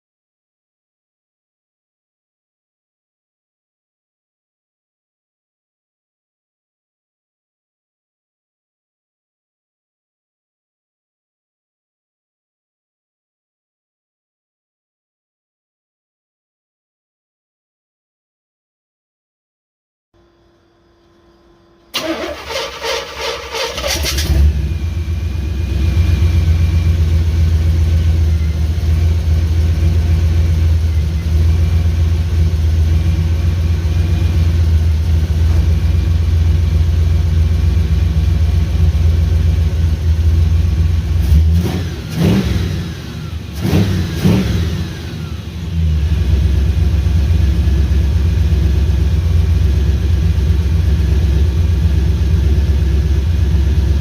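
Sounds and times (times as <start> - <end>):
car starter cranking: 21.8 - 24.6
car engine idling and revving: 21.9 - 54.0.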